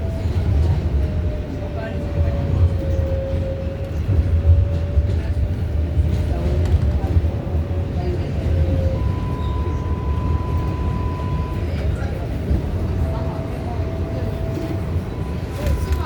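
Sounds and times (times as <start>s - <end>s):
subway car rumble: 0.0s - 16.0s.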